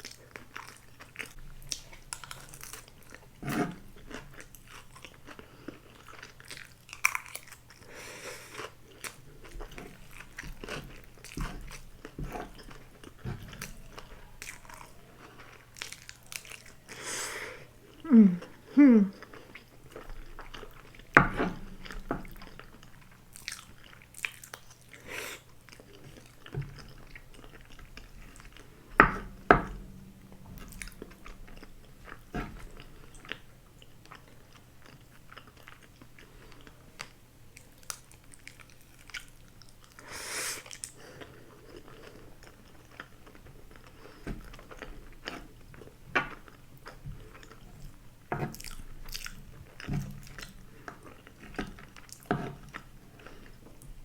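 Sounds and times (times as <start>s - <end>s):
chewing and biting food: 0.0s - 17.0s, 17.7s - 54.0s
food crunching: 0.0s - 54.0s.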